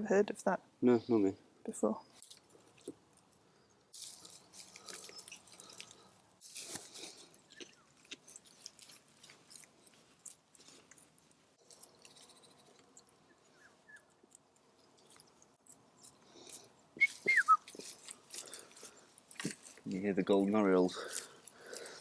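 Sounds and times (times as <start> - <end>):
rustling of plants and pots: 1.8 - 22.0
distant bird whistles: 17.0 - 17.7.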